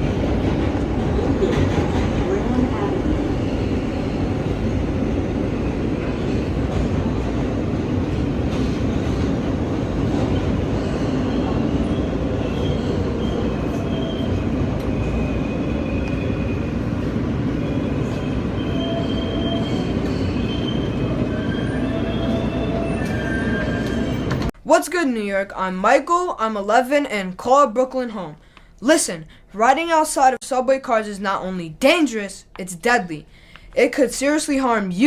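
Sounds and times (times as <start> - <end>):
wheels rumbling on rails: 0.0 - 24.5.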